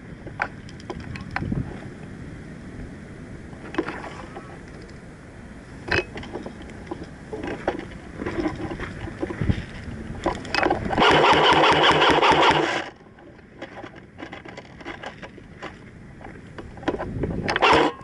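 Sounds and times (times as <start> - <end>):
airsoft gun full-auto bursts: 11.0 - 12.8.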